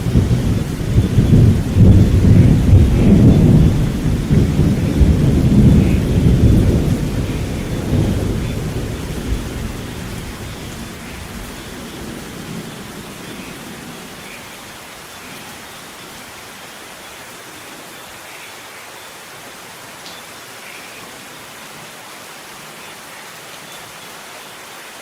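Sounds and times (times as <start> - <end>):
thunder rumbling: 0.0 - 14.4
rain falling: 0.0 - 25.0.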